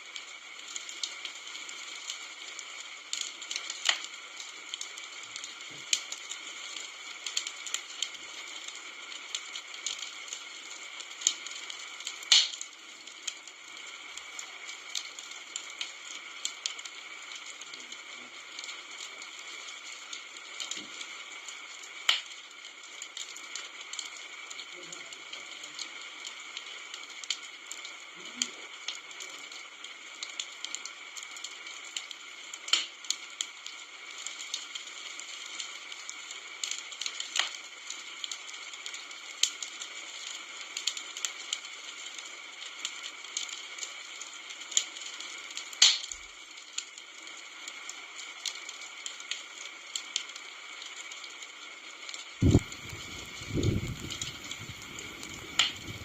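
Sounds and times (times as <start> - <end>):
wood fire crackling: 0.0 - 56.0
low thumps: 52.4 - 54.2.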